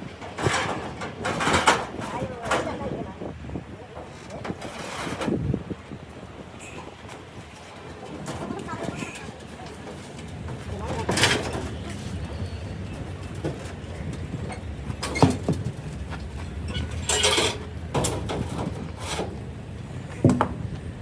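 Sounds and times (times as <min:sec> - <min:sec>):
engine rumbling: 0:00.0 - 0:21.0
short scraping and clattering: 0:04.0 - 0:05.4, 0:06.6 - 0:19.5.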